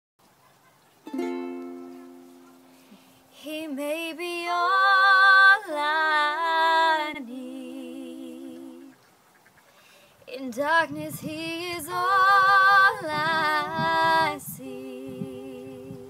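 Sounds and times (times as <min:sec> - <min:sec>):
ukulele chord strummed: 0:01.1 - 0:03.3
woman singing with vibrato: 0:03.3 - 0:08.9, 0:10.3 - 0:16.0.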